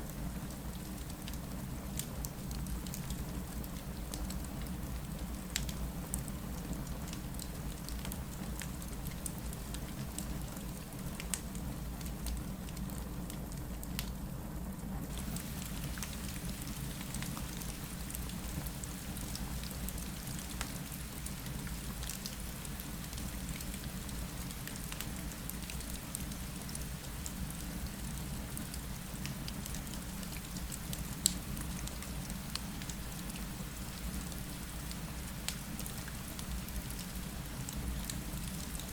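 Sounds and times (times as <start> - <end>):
fireplace crackling: 15.1 - 38.8
rain against a window: 15.1 - 38.9.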